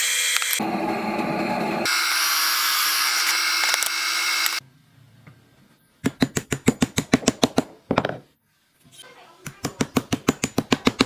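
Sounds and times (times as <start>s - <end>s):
power tool running: 0.0s - 4.6s.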